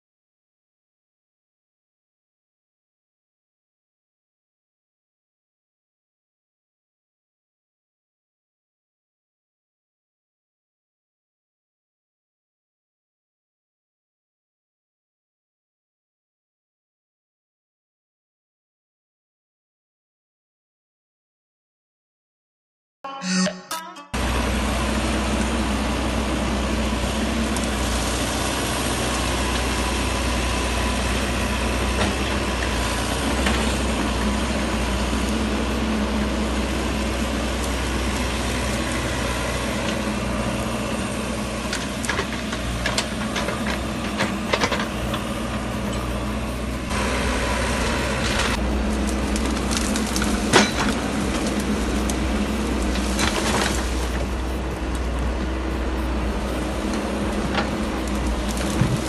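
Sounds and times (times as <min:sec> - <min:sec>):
excavator diesel engine running: 0:23.1 - 0:59.0.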